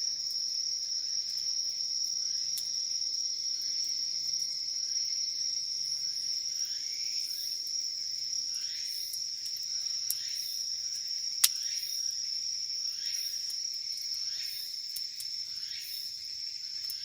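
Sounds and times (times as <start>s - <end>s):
insects trilling: 0.0s - 17.0s
campfire crackling: 0.1s - 6.7s, 9.1s - 10.2s, 13.4s - 15.5s.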